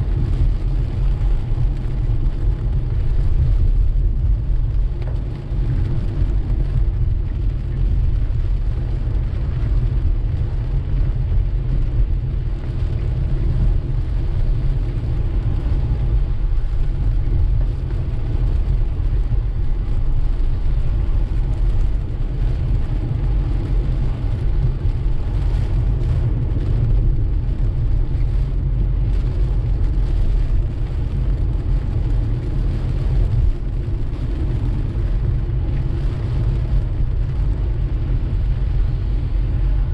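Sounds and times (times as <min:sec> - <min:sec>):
car road and engine rumble: 0:00.0 - 0:39.9
rain hissing on car: 0:00.0 - 0:39.9.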